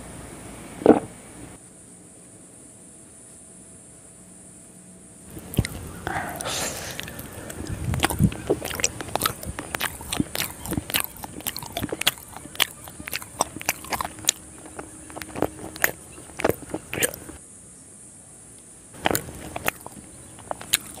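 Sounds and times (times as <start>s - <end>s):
wet chewing mouth smacks: 5.3s - 17.4s, 19.0s - 21.0s.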